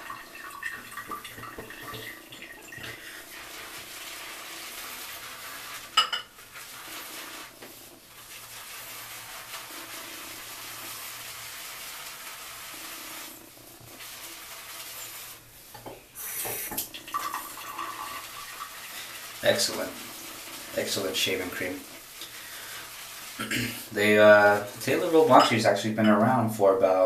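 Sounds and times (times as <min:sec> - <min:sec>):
tap running into sink: 0:00.5 - 0:03.0, 0:15.7 - 0:18.2.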